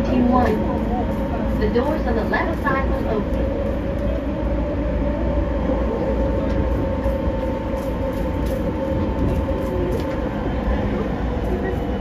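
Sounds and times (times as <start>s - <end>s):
steady train whine: 0.0s - 12.0s
wheels rumbling on rail: 0.0s - 12.0s.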